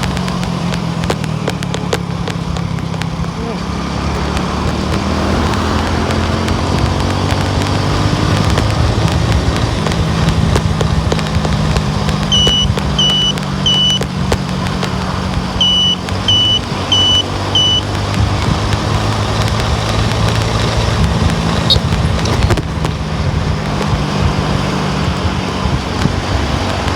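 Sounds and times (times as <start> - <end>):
car engine and road drone: 0.0 - 26.9
short high electronic beeps: 12.3 - 14.1, 15.6 - 17.9.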